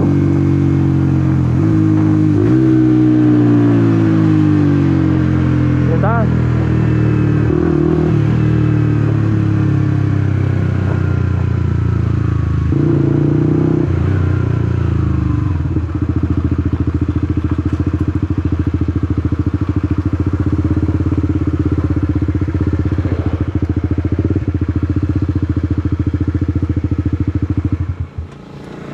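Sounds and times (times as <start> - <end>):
motorcycle engine slowing to idle: 14.1 - 28.9.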